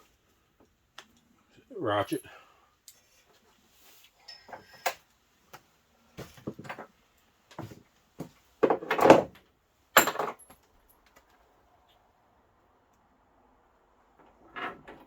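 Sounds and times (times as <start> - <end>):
tools and parts clattering: 6.2 - 6.9, 8.6 - 9.4, 10.0 - 11.3.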